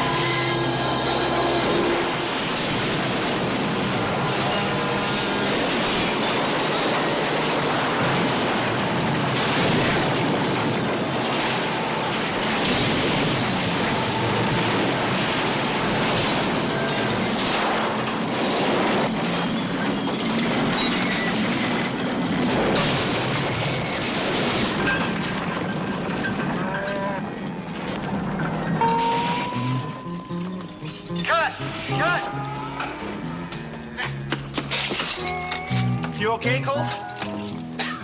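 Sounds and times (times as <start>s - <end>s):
truck rumbling and clattering: 0.0s - 38.0s.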